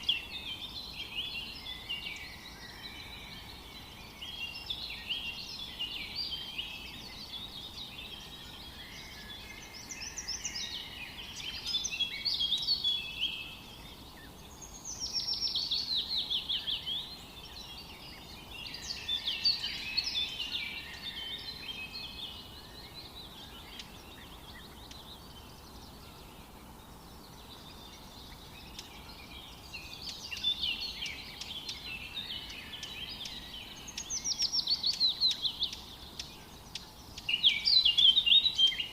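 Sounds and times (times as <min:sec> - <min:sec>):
faint steady hiss: 0:00.0 - 0:38.9
songbirds chirping and trilling: 0:00.0 - 0:38.9.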